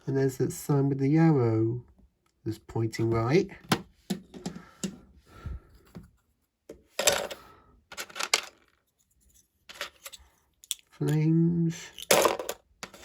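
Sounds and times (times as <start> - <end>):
plastic pieces clicking and clattering: 7.0 - 8.8, 9.7 - 11.2, 11.9 - 13.0.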